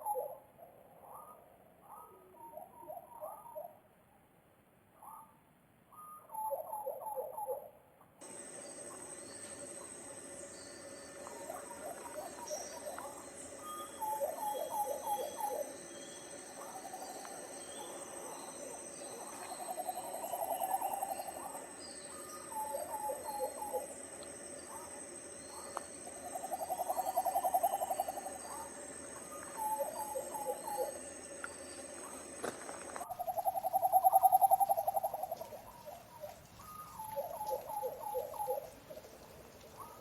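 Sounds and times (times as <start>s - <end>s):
steady high-pitched tone: 8.2s - 35.1s
bird rapid trills: 8.2s - 40.0s
birds calling with falling notes: 8.2s - 40.0s
faint high chirps: 8.2s - 40.0s.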